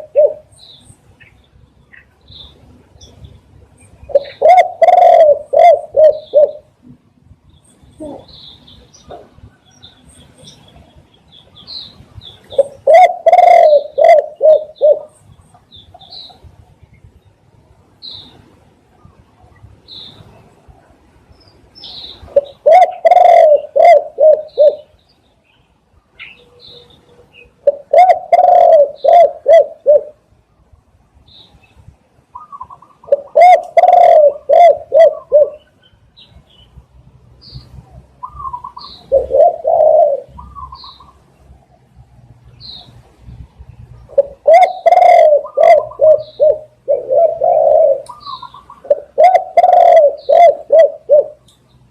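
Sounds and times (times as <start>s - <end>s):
dove cooing: 0.0s - 0.6s, 4.0s - 6.8s, 8.0s - 8.4s, 12.5s - 15.2s, 22.3s - 24.9s, 27.6s - 30.2s, 32.3s - 35.7s, 38.2s - 41.2s, 44.0s - 51.4s.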